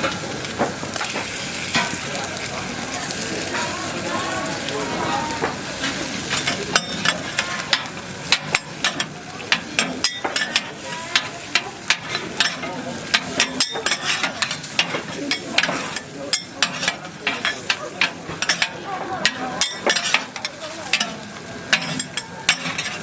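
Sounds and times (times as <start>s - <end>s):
food sizzling: 0.0s - 23.0s
metal spatulas scraping on griddle: 5.0s - 23.0s.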